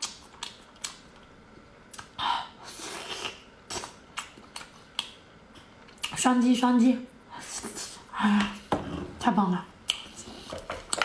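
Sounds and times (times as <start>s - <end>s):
person chewing and mouth smacks: 0.0s - 2.2s, 3.0s - 6.2s, 9.8s - 10.2s.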